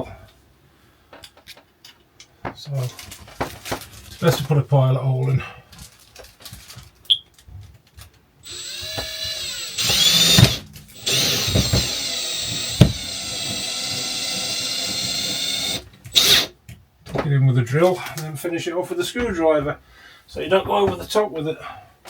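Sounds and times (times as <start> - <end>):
drill motor whine: 8.4 - 16.5.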